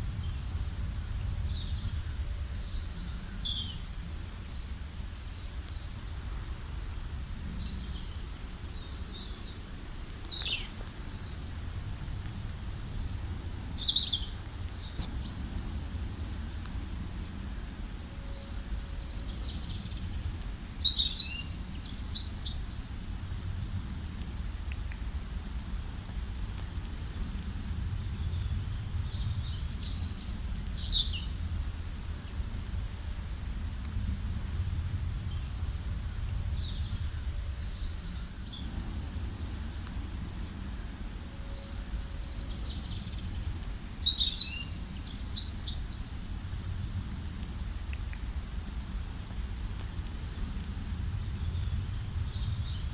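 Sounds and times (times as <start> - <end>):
low outdoor rumble: 0.0 - 52.9.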